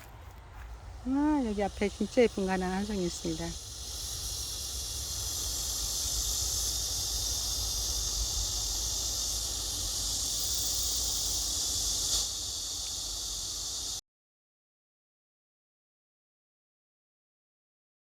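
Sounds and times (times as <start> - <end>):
insect chorus buzzing: 0.0 - 14.0.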